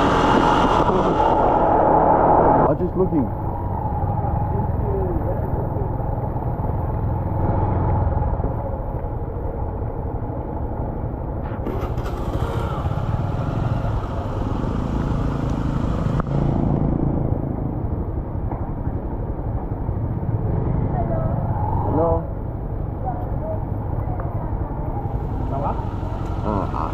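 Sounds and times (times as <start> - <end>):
motorcycle engine running: 11.4 - 18.7, 24.4 - 26.9.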